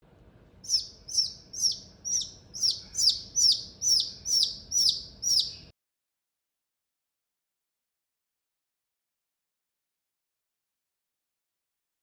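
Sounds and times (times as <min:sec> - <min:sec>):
chick peeping: 0:00.6 - 0:05.7.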